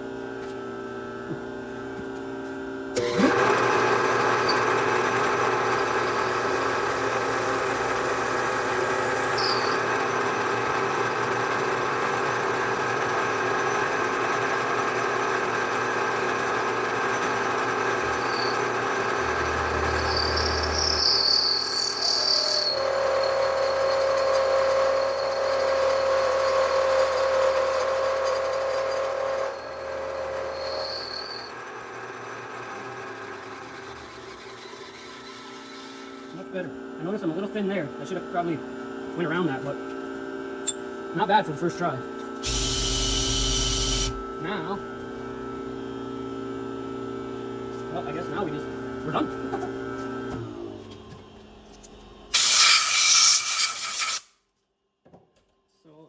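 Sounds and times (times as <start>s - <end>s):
milling machine cutting: 3.0s - 36.6s, 42.4s - 44.8s.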